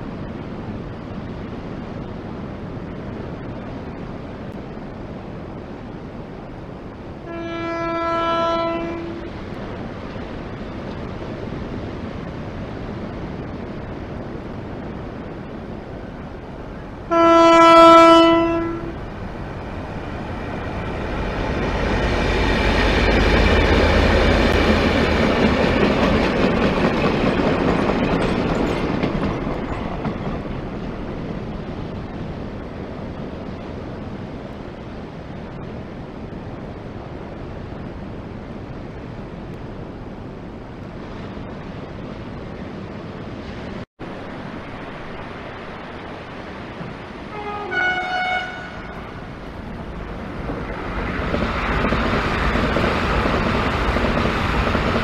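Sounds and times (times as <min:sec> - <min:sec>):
approaching train noise: 0:00.0 - 0:55.0
freight train rumbling past: 0:00.0 - 0:55.0
train horn stepping in pitch: 0:07.2 - 0:09.3, 0:17.1 - 0:19.0, 0:47.3 - 0:49.0.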